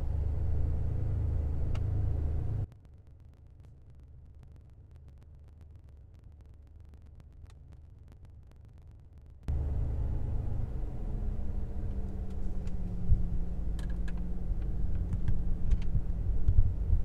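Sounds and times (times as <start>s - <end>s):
car engine idling: 9.5s - 17.0s.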